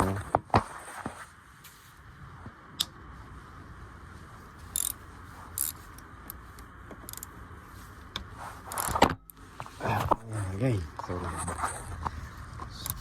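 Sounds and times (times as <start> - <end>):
sharp tick: 2.8 - 3.0
ratchet wrench clicking: 4.7 - 6.4, 7.0 - 7.3.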